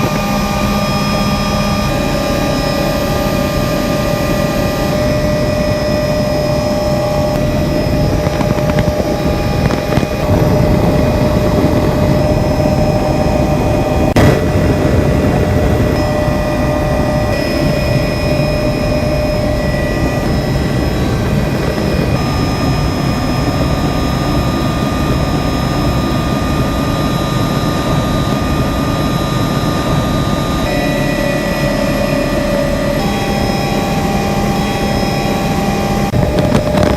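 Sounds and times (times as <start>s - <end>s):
helicopter rotor and engine drone: 0.0s - 36.9s
high turbine whine: 0.0s - 36.9s.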